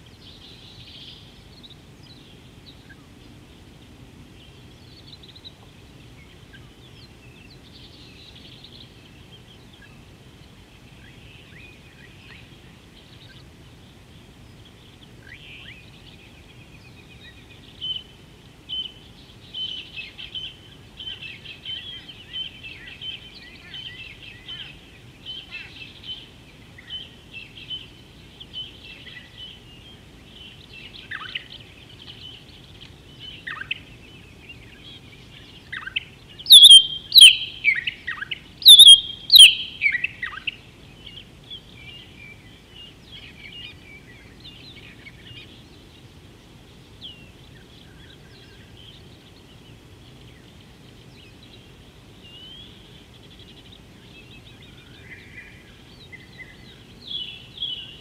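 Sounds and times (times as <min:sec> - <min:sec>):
faint outdoor background hiss: 0:00.0 - 0:58.0
birds chirping: 0:00.1 - 0:58.0
sharp downward bird calls: 0:36.4 - 0:40.5.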